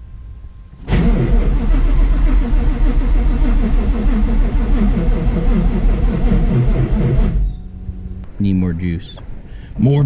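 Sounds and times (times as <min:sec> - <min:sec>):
engine running unevenly: 0:00.8 - 0:08.0.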